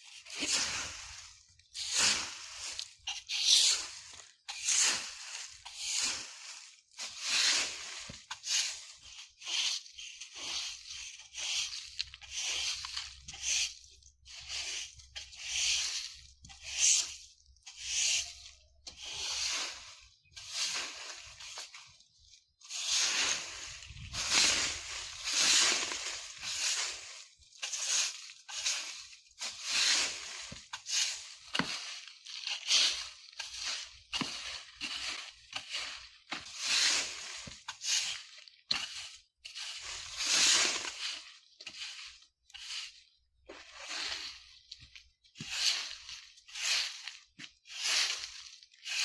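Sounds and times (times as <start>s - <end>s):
broom sweeping leaves: 0.0s - 49.0s.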